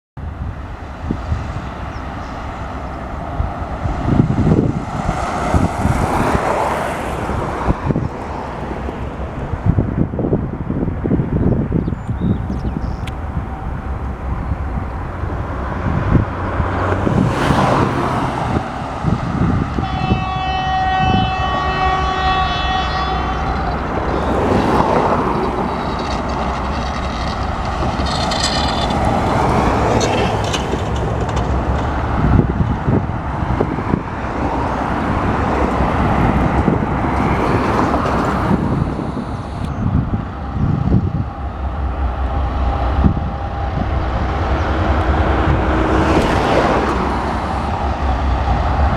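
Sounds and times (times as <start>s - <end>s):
diesel locomotive engine: 0.2s - 48.9s
train horn: 3.9s - 9.5s, 15.4s - 30.7s, 33.8s - 48.9s
train wagons clanking on rails: 12.1s - 39.8s, 40.6s - 48.9s.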